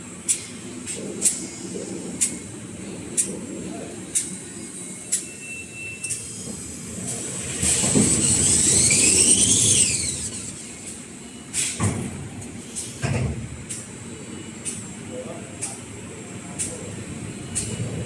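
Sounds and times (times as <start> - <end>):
hissing whine: 4.4 - 11.6
paper rewinding machine running: 6.8 - 10.6.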